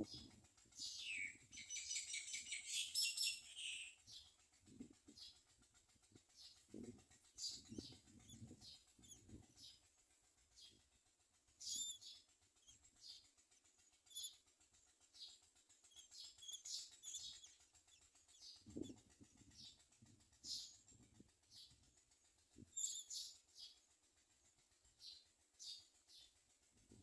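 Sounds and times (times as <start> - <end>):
soft rustle of wings: 4.0 - 27.0
nestlings chirping: 7.4 - 9.8, 11.6 - 13.2, 14.0 - 14.4, 15.2 - 19.0, 22.7 - 23.7.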